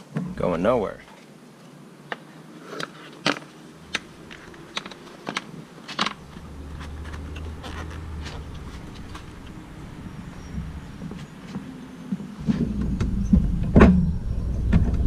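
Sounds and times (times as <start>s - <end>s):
low steady hum: 3.5s - 15.0s.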